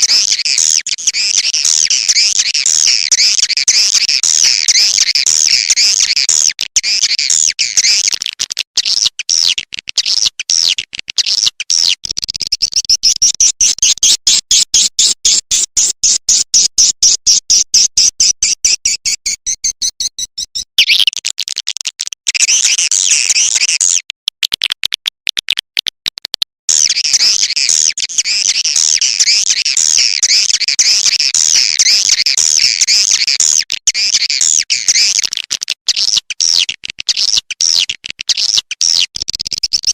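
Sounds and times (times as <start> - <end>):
swiftlet twittering chirps: 17.8 - 21.2.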